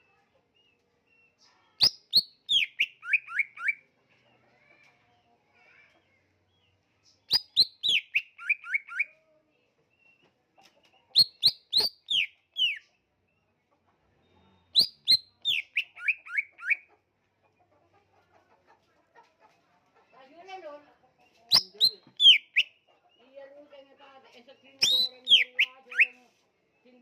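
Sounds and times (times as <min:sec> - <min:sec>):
bird singing descending notes: 0:21.5 - 0:22.6, 0:24.8 - 0:26.1.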